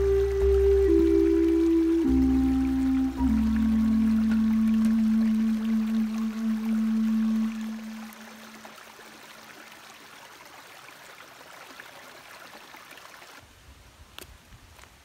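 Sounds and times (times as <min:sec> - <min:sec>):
background music note: 0:00.0 - 0:08.5
stream water rushing: 0:00.0 - 0:13.5.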